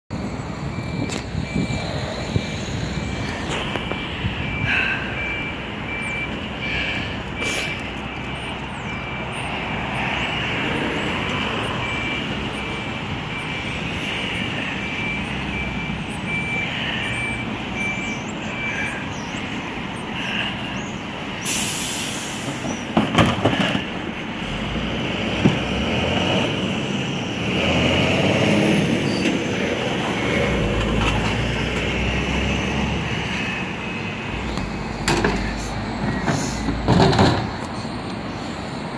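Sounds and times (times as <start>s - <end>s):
reversing alarm beeping: 0.2s - 20.5s, 29.0s - 36.8s.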